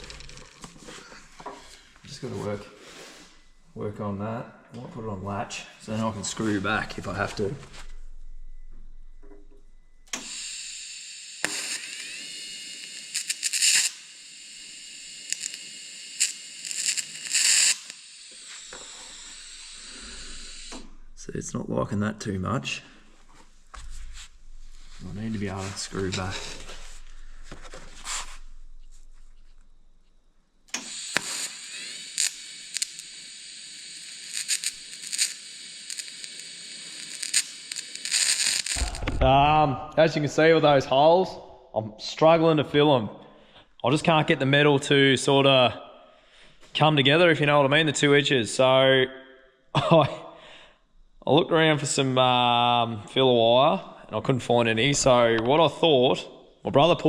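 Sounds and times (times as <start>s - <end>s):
welding arc crackling: 0.0s - 1.3s, 10.0s - 21.2s, 23.0s - 29.8s, 30.7s - 39.7s
welding arc hissing: 0.0s - 2.3s, 10.0s - 21.4s, 22.9s - 29.8s, 30.7s - 39.7s.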